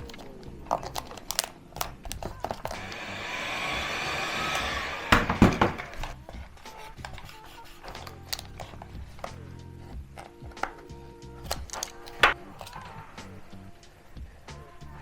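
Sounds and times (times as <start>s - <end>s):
hot-air blower running: 2.7s - 6.0s
loud knocks: 5.1s - 6.0s.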